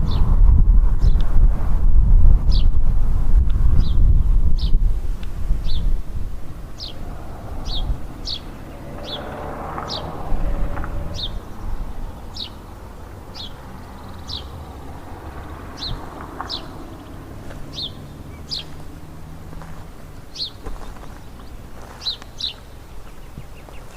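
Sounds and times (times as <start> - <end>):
low rumbling background: 0.0 - 23.8
bird chirping: 5.6 - 6.0, 6.6 - 23.9.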